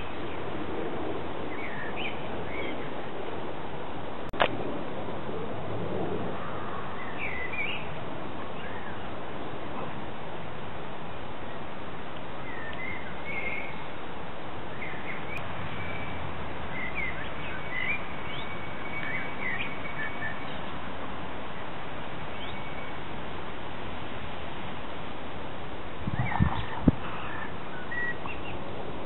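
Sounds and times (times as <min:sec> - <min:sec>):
outdoor background hiss: 0:00.0 - 0:29.0
songbirds chirping: 0:01.4 - 0:03.0, 0:06.6 - 0:09.3, 0:11.4 - 0:23.2, 0:26.1 - 0:28.8.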